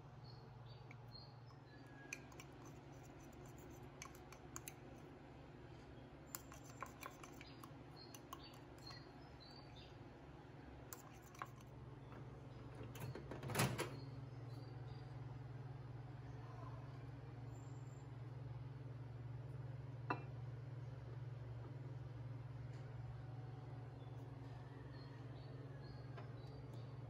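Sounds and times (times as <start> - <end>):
spoon scraping batter in mug: 0.9 - 5.1, 6.3 - 9.7, 10.9 - 11.8
spoon clatter: 2.0 - 4.8, 6.3 - 9.0, 11.0 - 11.7.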